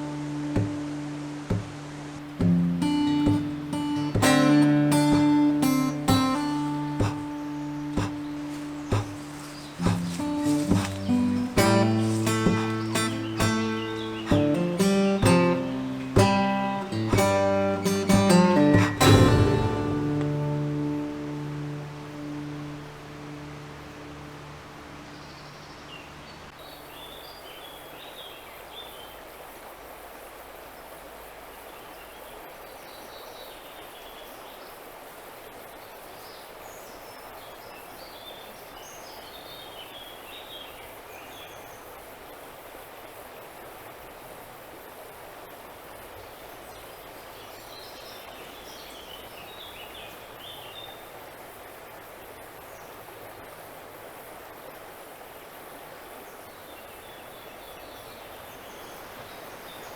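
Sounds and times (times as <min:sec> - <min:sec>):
songbird chirping: 0:00.0 - 0:29.2, 0:45.9 - 0:59.9
river water rushing: 0:00.0 - 0:32.8, 0:33.6 - 0:59.9.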